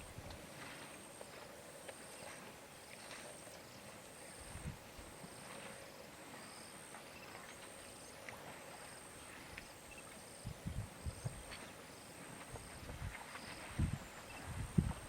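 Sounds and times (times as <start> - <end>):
pulsing insect trills: 0.7 - 15.0.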